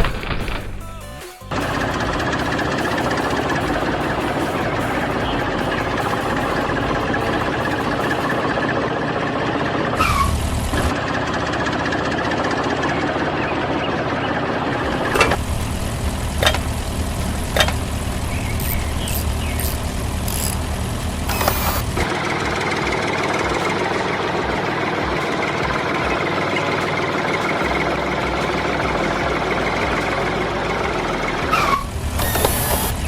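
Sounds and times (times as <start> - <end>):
engine running steadily: 1.5 - 33.0
sharp clicks: 15.1 - 22.2.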